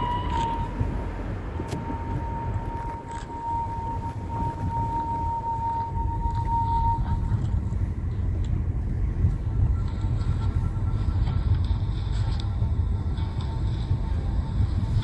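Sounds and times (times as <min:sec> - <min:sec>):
steady high tone: 0:00.0 - 0:08.4
vehicle rumbling in motion: 0:00.0 - 0:15.0.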